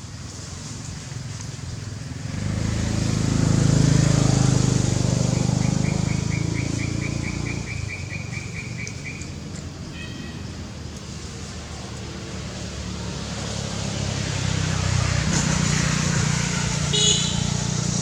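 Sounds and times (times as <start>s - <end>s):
vehicle engine passing by: 0.1s - 9.5s, 10.5s - 18.0s
bird chirping: 5.2s - 9.4s.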